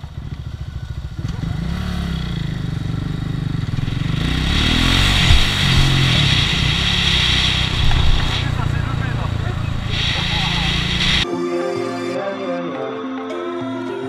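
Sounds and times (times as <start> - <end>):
motorcycle engine accelerating: 0.0 - 11.2
wind noise on helmet camera: 3.7 - 11.2.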